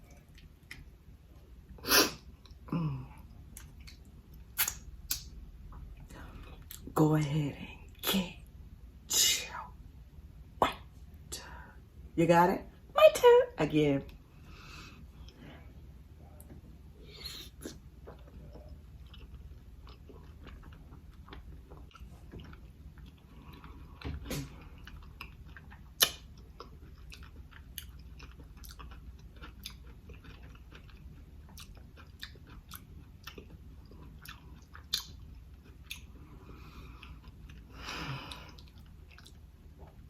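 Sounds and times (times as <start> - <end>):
chewing food: 0.0 - 1.5, 2.3 - 6.9, 17.4 - 40.0
wet mouth clicks and lip smacks: 3.6 - 5.3, 26.0 - 26.3, 34.8 - 35.2.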